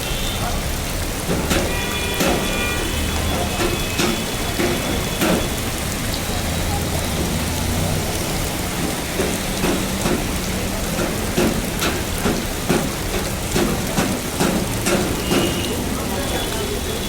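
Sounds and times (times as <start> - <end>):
heavy rain: 0.0 - 17.0
regular tapping: 8.7 - 15.7.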